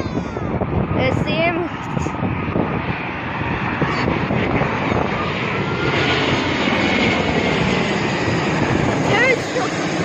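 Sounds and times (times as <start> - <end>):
faint high engine whine: 0.0 - 10.0
jet engines rushing: 0.0 - 10.0.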